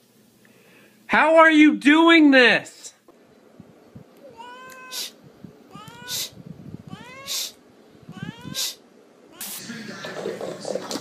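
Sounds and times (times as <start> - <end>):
cat meowing: 4.2 - 9.6
brief high hissing: 4.8 - 5.2, 6.0 - 6.4, 7.1 - 7.6, 8.5 - 8.8, 9.4 - 9.7.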